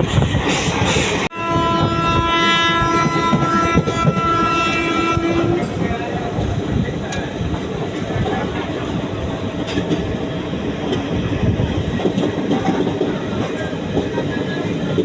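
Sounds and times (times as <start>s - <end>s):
train coaches running: 0.0s - 15.0s
wheels clicking over rail joints: 3.3s - 15.0s.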